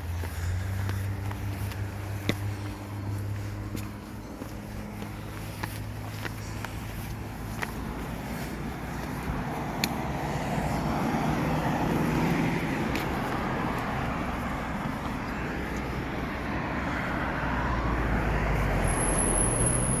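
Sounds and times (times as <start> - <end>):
outdoor traffic noise: 0.0 - 20.0
vehicle passing: 0.0 - 20.0.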